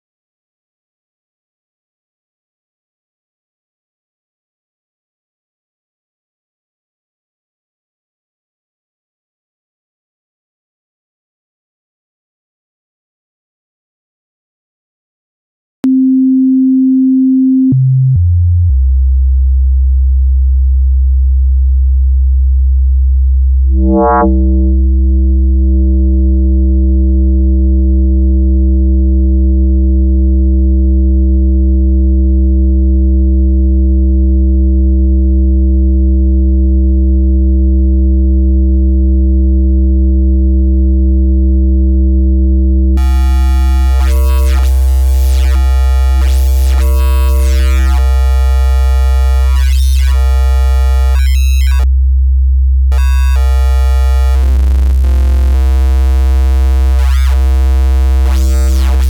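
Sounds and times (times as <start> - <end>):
synthesizer bass note: 23.7 - 26.7, 42.9 - 51.9, 52.9 - 59.0.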